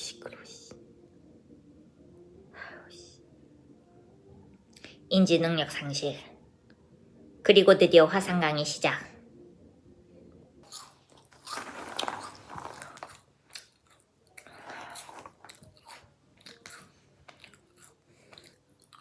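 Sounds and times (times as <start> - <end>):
person chewing crunchy food: 10.6 - 19.0.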